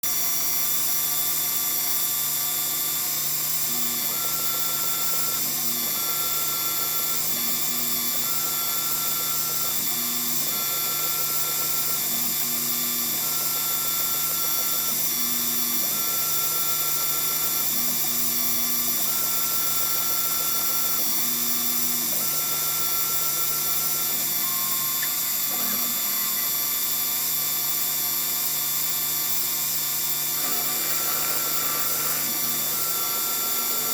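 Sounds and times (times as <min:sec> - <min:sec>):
mill humming and hissing: 0:30.0 - 0:33.9
drive motors whining: 0:30.4 - 0:33.9.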